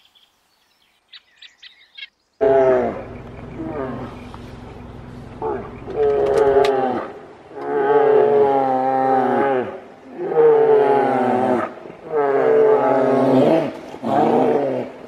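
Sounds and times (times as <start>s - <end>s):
animal drawn-out calls: 2.4s - 15.0s.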